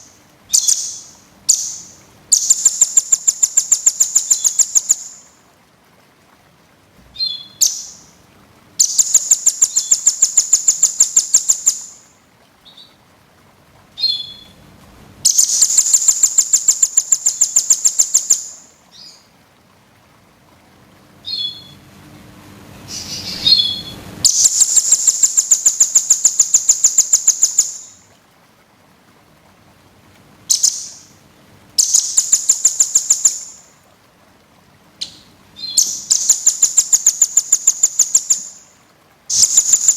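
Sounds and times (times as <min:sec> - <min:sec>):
songbird rapid trills: 0:00.0 - 0:05.4, 0:08.8 - 0:12.9, 0:15.2 - 0:19.3, 0:22.8 - 0:28.1, 0:30.5 - 0:31.1, 0:31.8 - 0:33.7, 0:35.0 - 0:39.9
short bird chirps: 0:21.3 - 0:21.8.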